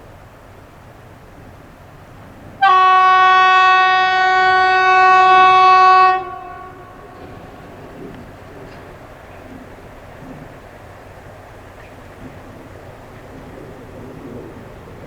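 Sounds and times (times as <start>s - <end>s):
locomotive horn blast: 2.6s - 7.9s.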